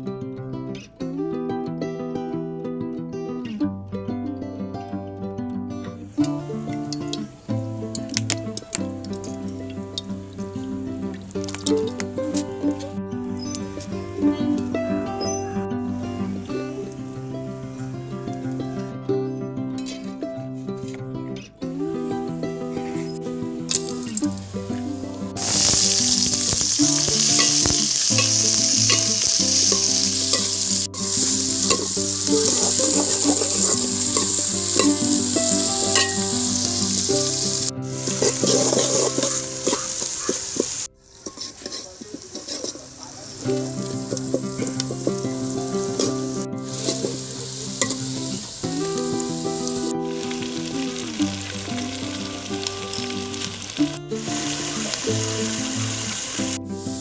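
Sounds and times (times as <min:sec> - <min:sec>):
background music: 0:00.0 - 0:40.0, 0:43.4 - 0:57.0
chicken sizzling in hot oil: 0:11.3 - 0:12.4, 0:23.7 - 0:24.6, 0:25.4 - 0:57.0
stirring clicks: 0:25.4 - 0:51.0.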